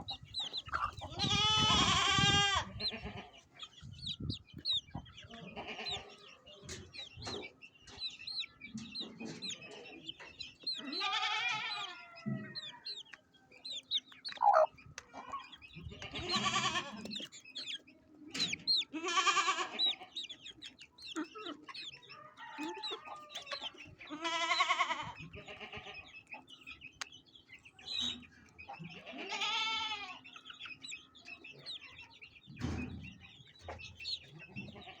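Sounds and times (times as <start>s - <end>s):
chicken drawn-out calls: 0.0s - 6.9s, 8.8s - 26.4s, 28.8s - 30.9s
chickens clucking: 0.0s - 35.0s.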